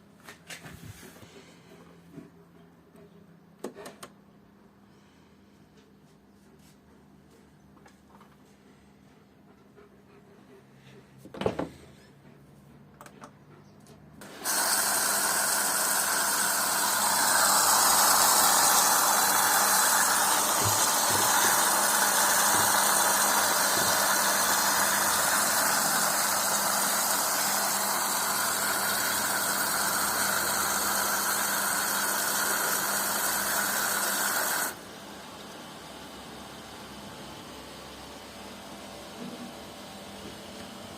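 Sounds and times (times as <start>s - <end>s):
water rushing into washing machine: 14.2s - 35.1s.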